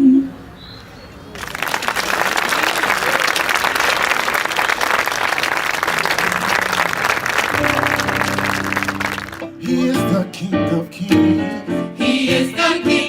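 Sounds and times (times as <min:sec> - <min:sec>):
audience applauding: 0:01.3 - 0:10.2
held instrumental chord: 0:07.6 - 0:13.0.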